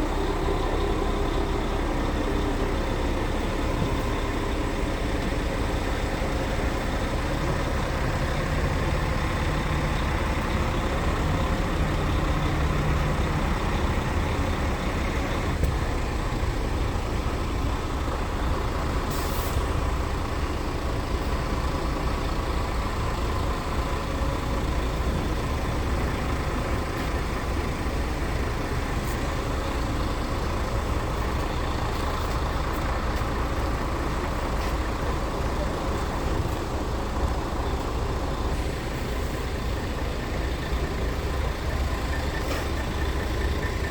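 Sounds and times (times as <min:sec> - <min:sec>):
diesel truck engine running: 0:00.0 - 0:43.9
air brake hiss: 0:19.1 - 0:19.7, 0:42.4 - 0:42.8.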